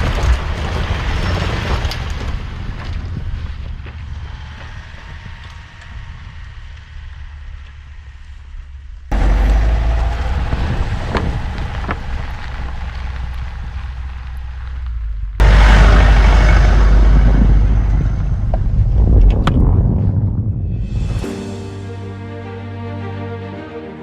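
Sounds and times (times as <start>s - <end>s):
vehicle driving rumble: 0.0s - 22.5s
wind on microphone: 10.0s - 14.0s, 16.6s - 21.3s.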